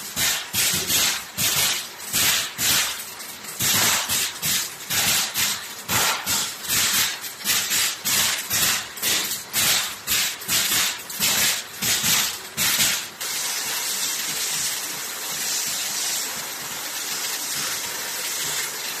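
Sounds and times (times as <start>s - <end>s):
production line machinery running: 0.0s - 19.0s
sharp hissing bursts: 3.6s - 13.6s.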